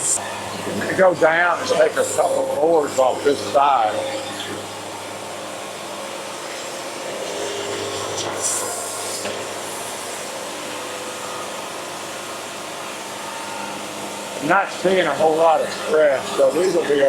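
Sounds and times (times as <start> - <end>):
band saw cutting wood: 0.8 - 4.7.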